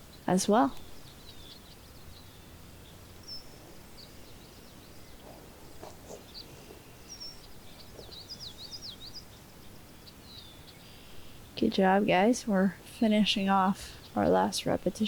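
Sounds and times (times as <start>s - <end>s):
birds chirping: 0.0s - 15.0s
faint low background rumble: 0.0s - 15.0s.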